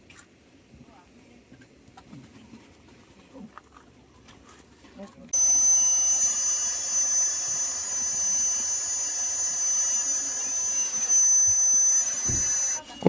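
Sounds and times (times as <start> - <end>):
thin high whistle: 5.4 - 12.8.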